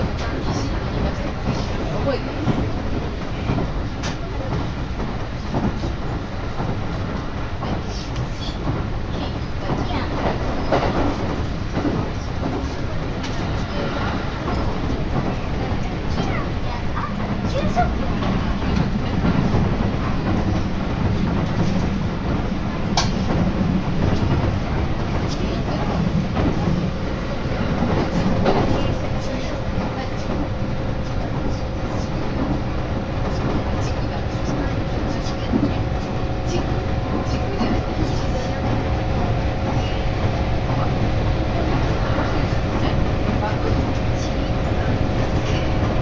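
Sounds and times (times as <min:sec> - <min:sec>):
train wheels rumbling on rails: 0:00.0 - 0:46.0
sharp clack: 0:23.0 - 0:23.4.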